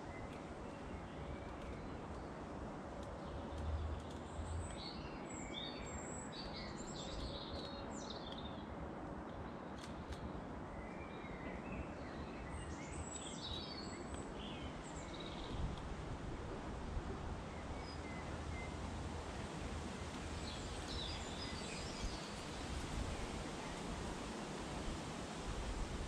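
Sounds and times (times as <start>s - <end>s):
outdoor background noise: 0.0s - 26.0s
small birds chirping: 3.2s - 8.6s, 10.8s - 15.7s, 20.2s - 23.8s.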